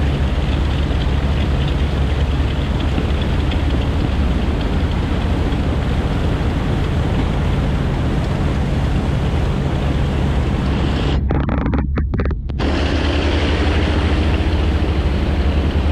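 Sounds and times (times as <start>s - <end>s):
flying boat radial engines droning: 0.0s - 15.9s
wind noise on microphone: 0.0s - 15.9s.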